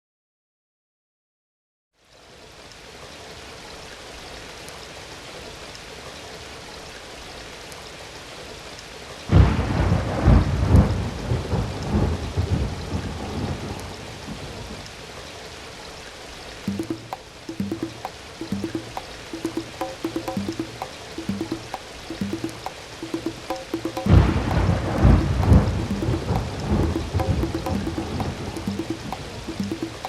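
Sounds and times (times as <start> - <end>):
steady rain hiss: 2.0 - 29.8.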